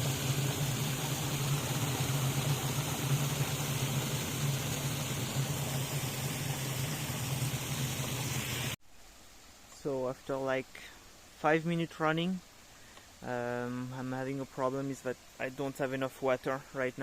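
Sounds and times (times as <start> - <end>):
low motor hum: 0.0 - 8.8
water jet hissing and splashing: 0.0 - 8.8.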